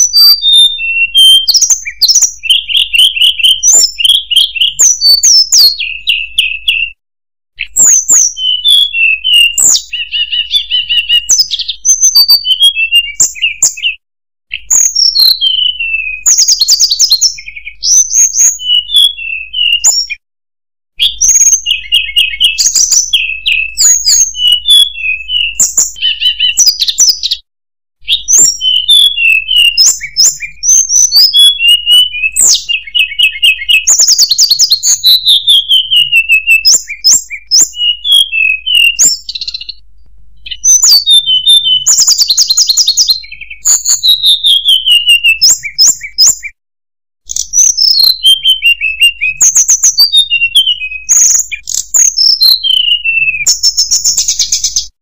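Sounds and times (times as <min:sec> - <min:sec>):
bird singing whistled notes: 0:00.0 - 0:07.0, 0:07.6 - 0:20.2, 0:21.0 - 0:46.6, 0:47.2 - 0:55.0.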